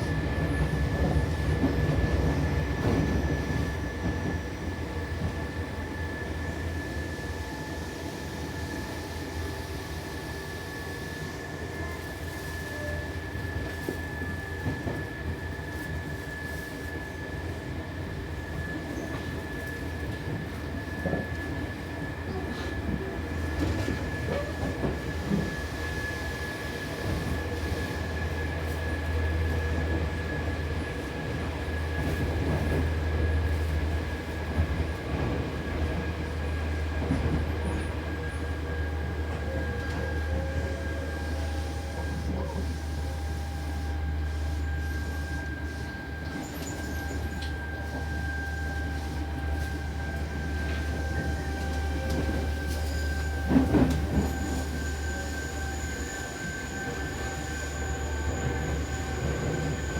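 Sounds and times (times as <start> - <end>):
electric train deep hum: 0.0 - 59.9
wheel noise on rails: 0.0 - 59.9.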